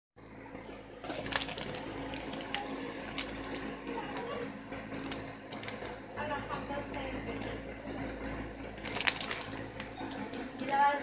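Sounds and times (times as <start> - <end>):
birds chirping: 0.2 - 11.0
steady low hum: 0.2 - 11.0.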